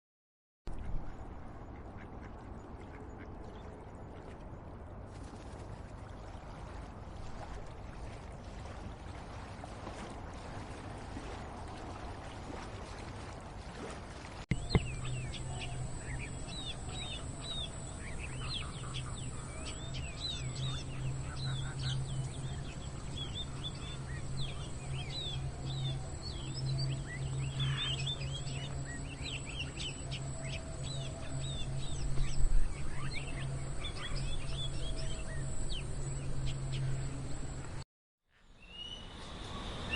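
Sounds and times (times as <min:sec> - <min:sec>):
steady low hum: 0:00.7 - 0:37.8
small birds chirping: 0:14.5 - 0:37.1.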